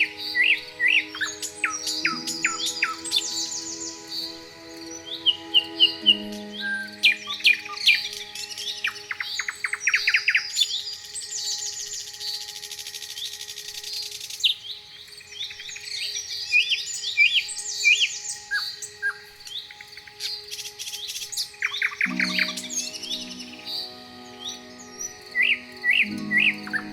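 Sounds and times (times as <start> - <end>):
soft sustained music chords: 0.0 - 26.9
songbirds chirping: 0.0 - 26.9.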